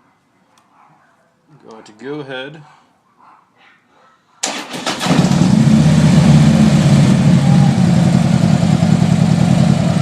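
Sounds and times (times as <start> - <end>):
motorcycle starter cranking: 4.4 - 5.7
motorcycle engine idling: 5.3 - 10.0.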